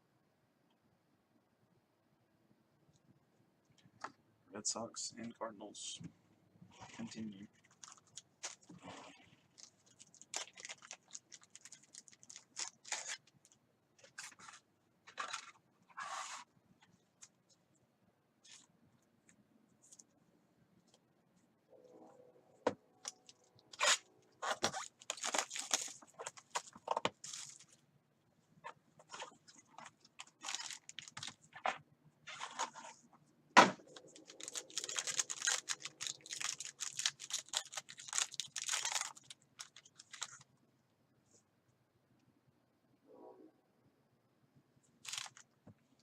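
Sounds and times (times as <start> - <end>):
wrappers crinkling and tearing: 7.5 - 14.4, 23.0 - 27.8, 29.1 - 31.6, 34.0 - 40.5, 45.0 - 45.4.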